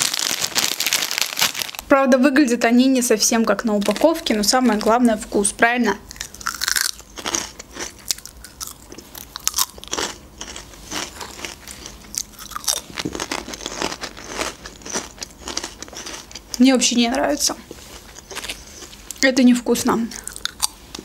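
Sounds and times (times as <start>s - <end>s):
crunchy snacks being chewed: 6.1s - 16.6s, 17.7s - 19.2s, 20.1s - 21.0s.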